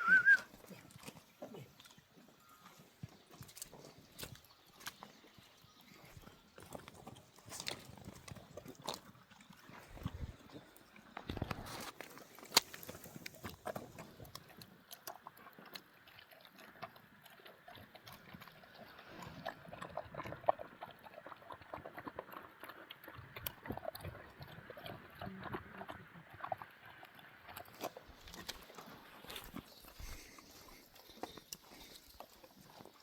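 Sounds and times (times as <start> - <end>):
livestock moving and feeding: 0.0 - 33.0.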